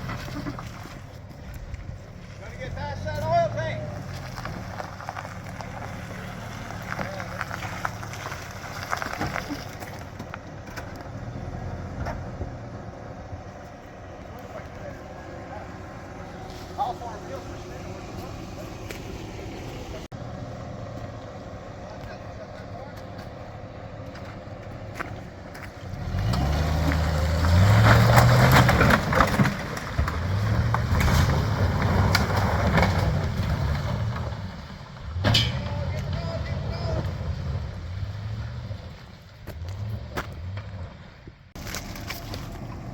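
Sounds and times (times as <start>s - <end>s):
truck engine revving under load: 2.1s - 42.9s
knocks and rattles: 35.2s - 36.4s.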